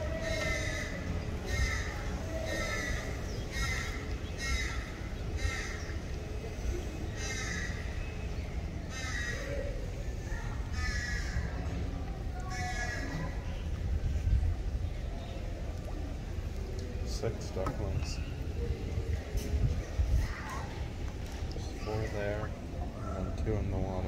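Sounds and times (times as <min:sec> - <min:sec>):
bird calling: 0:00.0 - 0:09.9.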